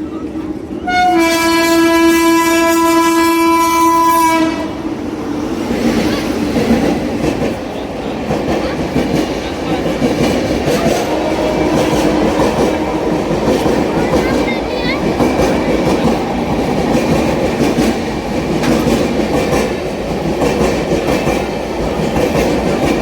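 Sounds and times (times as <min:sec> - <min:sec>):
passing train running noise: 0:00.0 - 0:23.0
train horn: 0:00.8 - 0:04.8, 0:10.6 - 0:14.1
wheels clicking over rail joints: 0:05.6 - 0:23.0.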